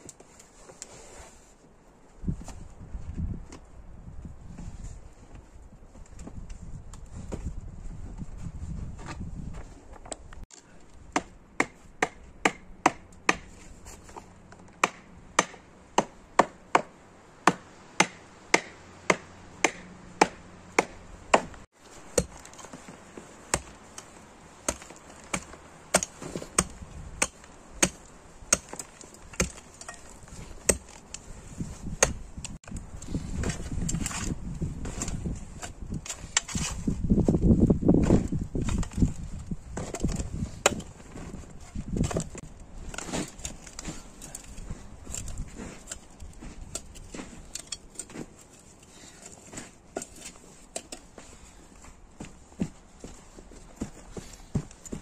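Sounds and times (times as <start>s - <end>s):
axe chopping wood: 11.1s - 13.6s, 14.8s - 22.9s, 23.5s - 31.1s, 31.9s - 32.2s.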